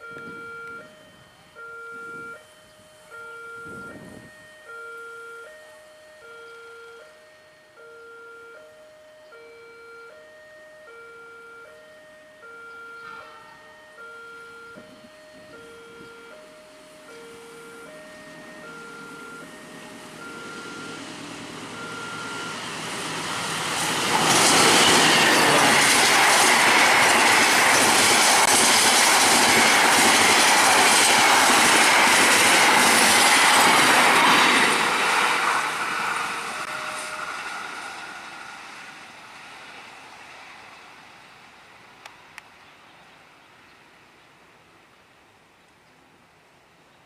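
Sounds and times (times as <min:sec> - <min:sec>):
level crossing alarm tones: 0:00.0 - 0:29.8, 0:31.8 - 0:37.7
train wheels running over rails: 0:17.0 - 0:41.3.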